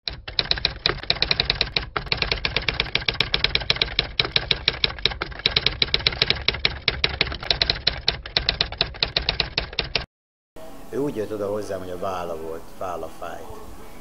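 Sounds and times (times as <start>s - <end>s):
typewriter keystroke clatter: 0.0s - 10.1s.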